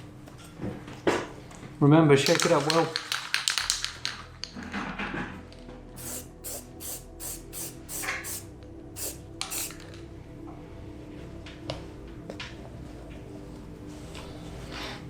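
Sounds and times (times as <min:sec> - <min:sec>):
aerosol can spraying in hissing bursts: 0:06.0 - 0:09.9.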